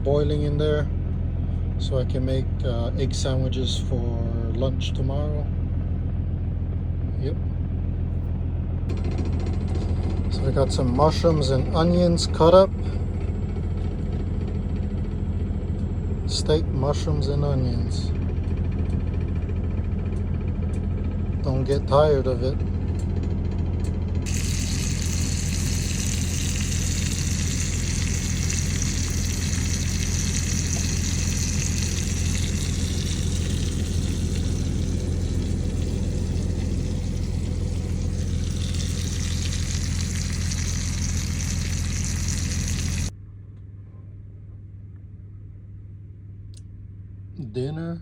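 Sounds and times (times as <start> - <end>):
steady low hum: 24.0 - 48.0
food sizzling in a frying pan: 24.3 - 43.1.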